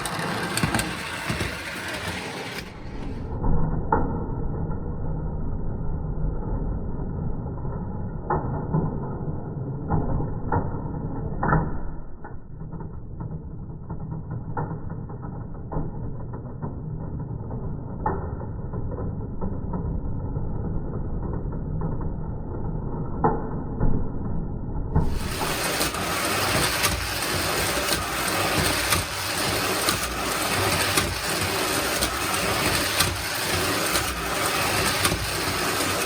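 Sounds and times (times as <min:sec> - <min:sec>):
toy train motor whirring: 0:00.0 - 0:03.2, 0:25.0 - 0:36.0.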